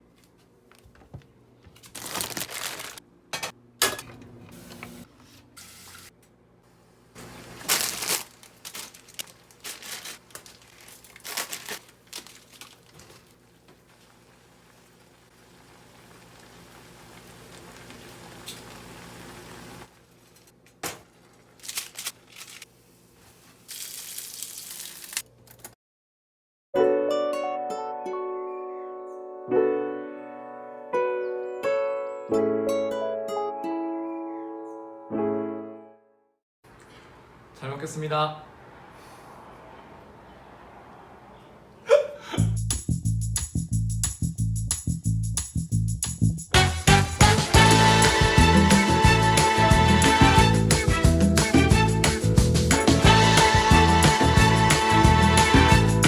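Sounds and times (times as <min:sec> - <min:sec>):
packaging crinkling and rustling: 0:01.7 - 0:03.0, 0:07.2 - 0:14.3, 0:19.9 - 0:25.8
kitchenware clattering: 0:03.3 - 0:04.2
stovetop hissing: 0:13.5 - 0:20.0.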